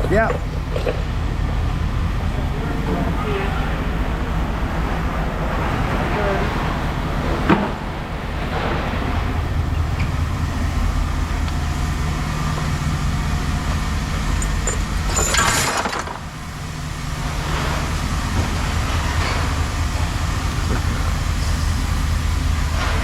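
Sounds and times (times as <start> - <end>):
low machine drone: 0.0 - 23.0
scrap metal clattering: 14.3 - 16.4.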